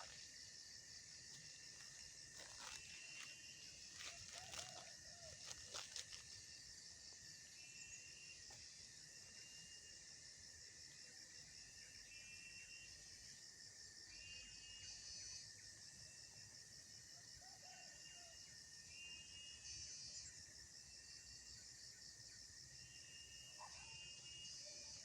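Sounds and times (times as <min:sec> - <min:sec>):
continuous low whine: 0:00.0 - 0:17.1
insects trilling: 0:00.0 - 0:25.0
short cricket chirps: 0:00.0 - 0:25.0.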